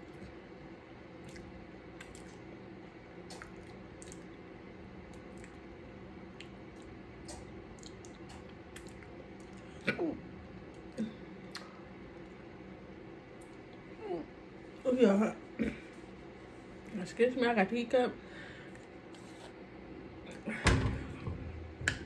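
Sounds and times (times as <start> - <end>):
steady low hum: 0.0 - 22.0
wet chewing and mouth smacks: 1.2 - 2.5, 3.2 - 4.4, 5.1 - 5.7, 6.3 - 9.8, 11.5 - 12.3.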